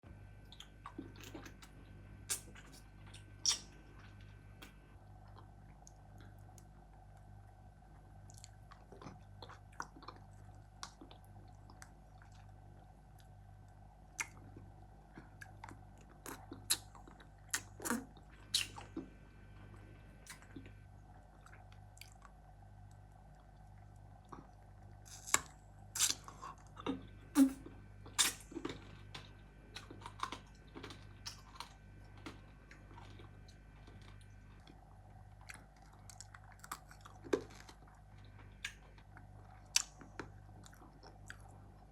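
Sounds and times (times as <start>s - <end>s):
candy crunching in mouth: 25.0s - 31.8s, 35.4s - 41.6s.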